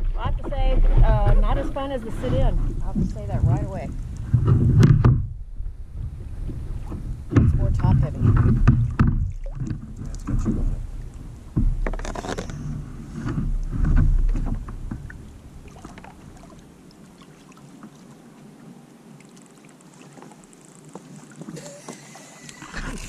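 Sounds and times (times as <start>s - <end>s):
wind buffeting microphone: 0.0s - 12.0s
water splashing around a kayak: 0.0s - 23.0s.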